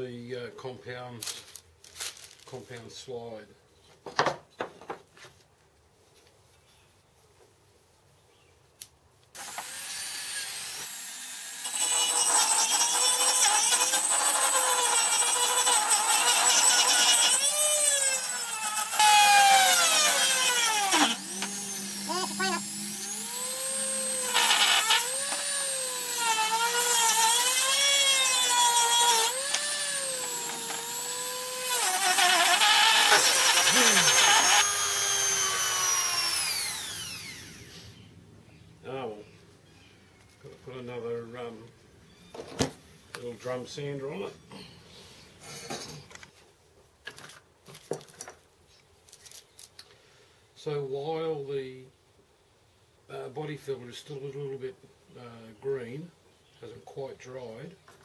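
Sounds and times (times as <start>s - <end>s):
power tool sanding: 9.4s - 37.8s.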